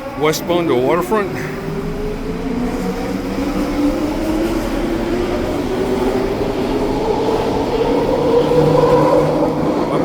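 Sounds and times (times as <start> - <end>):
train cars rumbling: 0.0 - 10.0.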